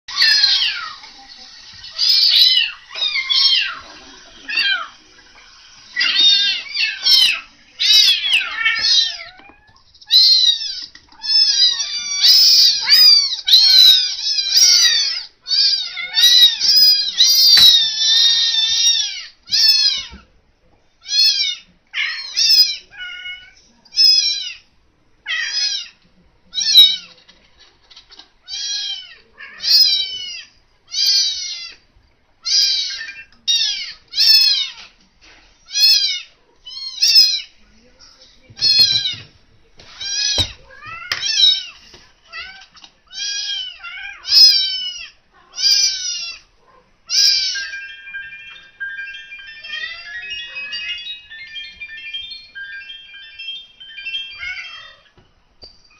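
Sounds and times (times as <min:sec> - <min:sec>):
kittens mewing: 0:40.0 - 0:48.6.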